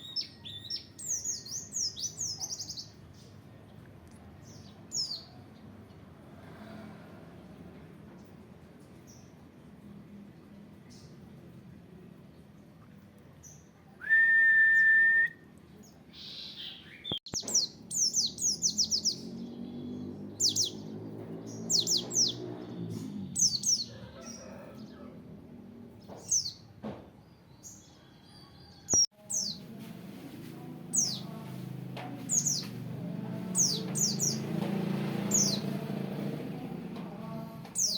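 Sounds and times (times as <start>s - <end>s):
bird chirping: 0.0s - 3.4s, 15.7s - 24.3s, 33.4s - 34.6s, 35.3s - 35.8s.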